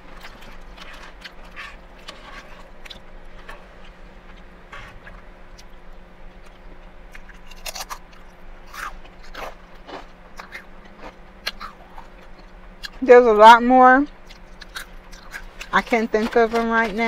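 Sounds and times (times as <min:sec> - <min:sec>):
crunching a crisp chip: 0:06.4 - 0:13.0, 0:14.2 - 0:17.0.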